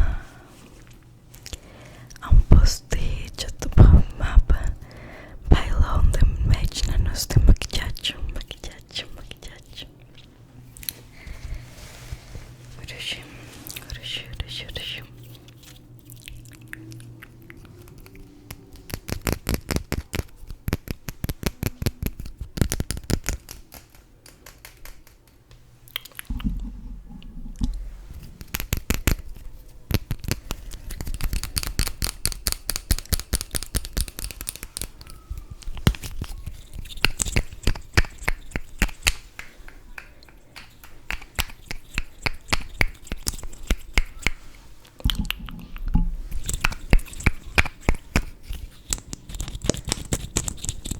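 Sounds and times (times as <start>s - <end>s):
close scratching and tapping: 13.6s - 50.9s.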